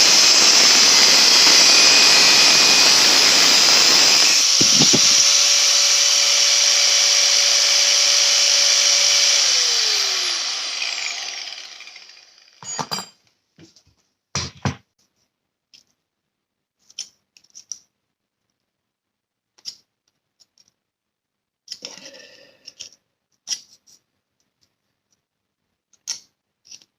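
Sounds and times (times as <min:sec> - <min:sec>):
electric power tool running: 0:00.0 - 0:12.6
sharp knocks and clinks: 0:12.6 - 0:13.2.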